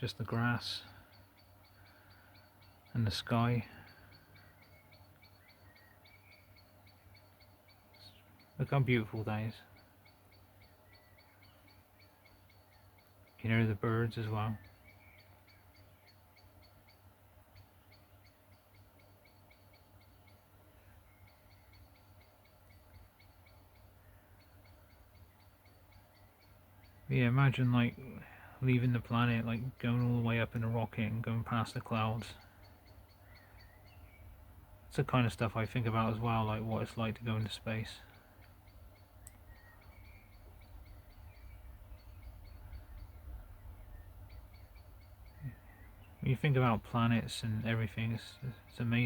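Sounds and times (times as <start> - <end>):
bird chirping: 0.0 - 49.0
low steady rumble: 0.0 - 49.0
steady low rumble: 26.2 - 49.0
whistled bird calls: 32.2 - 34.3, 37.5 - 46.8.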